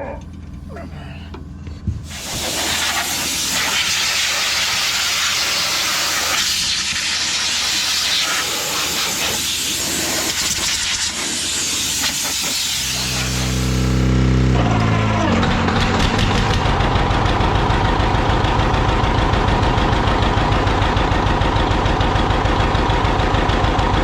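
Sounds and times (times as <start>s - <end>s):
air hose hissing: 2.0s - 14.2s.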